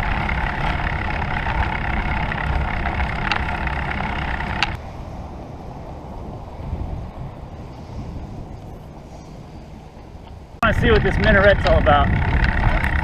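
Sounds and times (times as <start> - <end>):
bicycle freewheel buzzing: 0.0 - 4.8, 10.8 - 13.0
sharp clicks: 0.0 - 4.8
wind rumble on microphone: 0.0 - 13.0.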